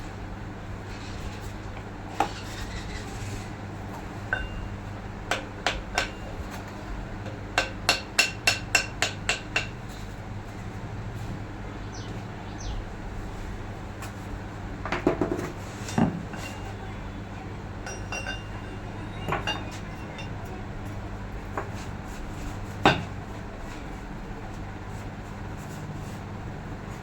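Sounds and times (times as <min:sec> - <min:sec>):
metal tools clinking and knocking: 0:17.9 - 0:20.6.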